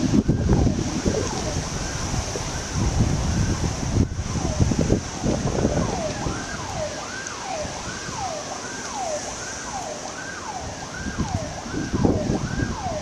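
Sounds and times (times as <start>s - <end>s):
siren wailing in fast sweeps: 0.0s - 13.0s.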